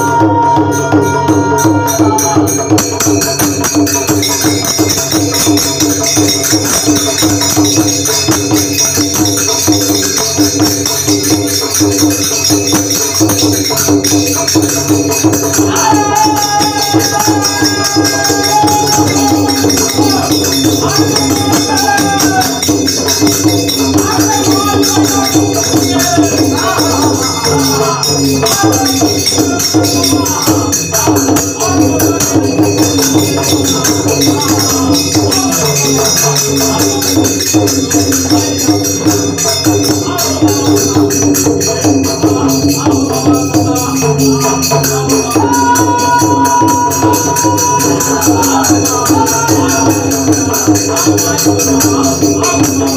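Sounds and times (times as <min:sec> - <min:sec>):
wavering voice or melody: 0:00.0 - 0:05.8, 0:15.4 - 0:50.8
drum: 0:00.0 - 0:52.9
hand cymbals jingling: 0:00.0 - 0:52.9.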